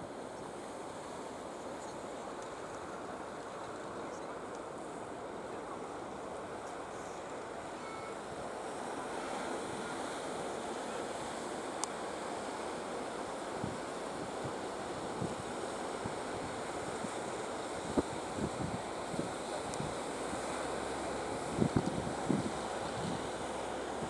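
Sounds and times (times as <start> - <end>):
wind buffeting microphone: 21.5 - 23.4.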